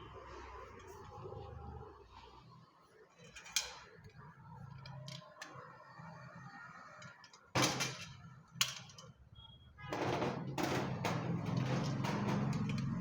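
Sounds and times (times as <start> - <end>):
clattering knocks: 9.9 - 13.0.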